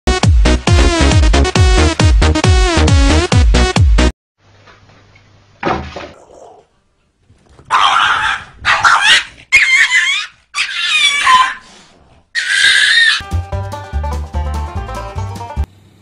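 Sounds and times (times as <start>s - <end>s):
dog barking and yelping: 7.7s - 11.7s, 12.3s - 13.2s.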